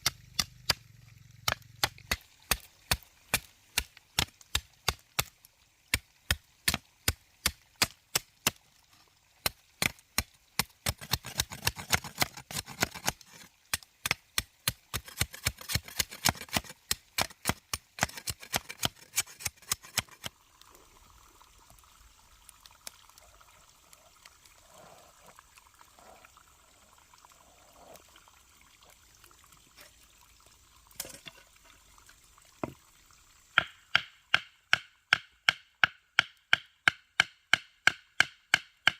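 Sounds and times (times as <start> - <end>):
faint water trickle: 0.0 - 11.4, 12.2 - 33.6
blade chopping: 14.9 - 20.3.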